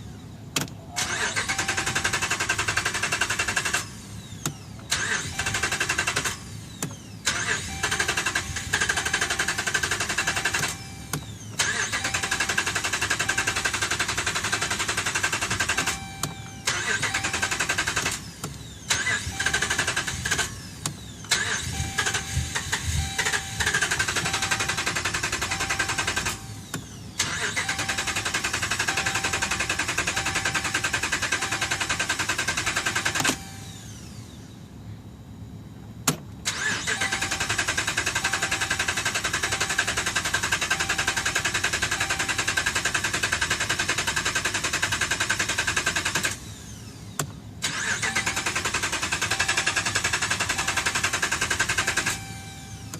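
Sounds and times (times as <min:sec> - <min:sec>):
engine cranking on starter: 0:01.0 - 0:34.2, 0:36.4 - 0:52.9
repeating beep: 0:03.2 - 0:34.0, 0:36.6 - 0:42.9, 0:47.8 - 0:52.9.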